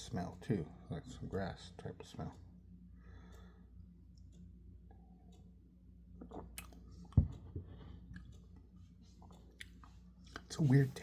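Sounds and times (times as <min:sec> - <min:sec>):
person sipping and swallowing: 0:06.2 - 0:06.8
wet mouth clicks: 0:06.2 - 0:06.8.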